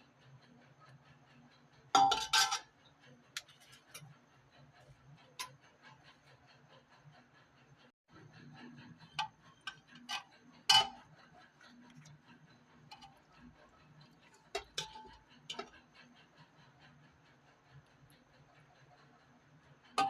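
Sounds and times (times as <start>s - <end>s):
utensil clinking against cookware: 2.0s - 2.7s, 9.2s - 12.1s, 14.4s - 15.7s.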